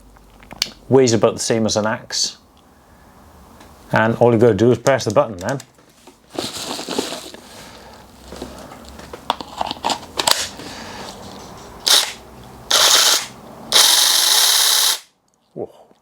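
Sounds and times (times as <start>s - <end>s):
mini chainsaw motor spinning up: 11.8s - 15.1s.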